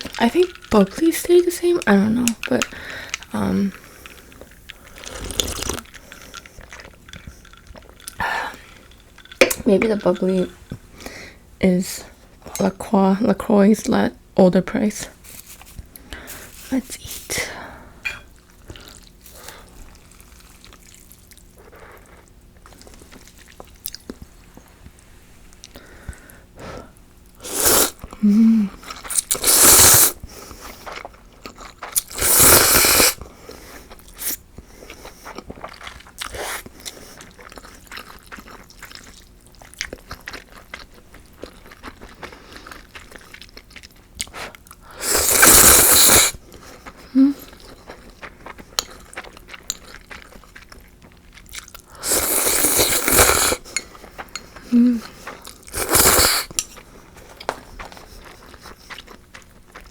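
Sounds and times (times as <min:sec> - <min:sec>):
quiet chewing: 0:00.0 - 0:11.4, 0:18.4 - 0:29.6, 0:30.2 - 0:32.2, 0:33.0 - 0:59.9
noodles slurped from broth: 0:03.7 - 0:06.5, 0:27.4 - 0:28.0, 0:29.1 - 0:30.2, 0:32.1 - 0:33.2, 0:44.9 - 0:46.4, 0:52.0 - 0:53.8, 0:55.7 - 0:56.6
small mouth clicks: 0:04.0 - 0:06.0.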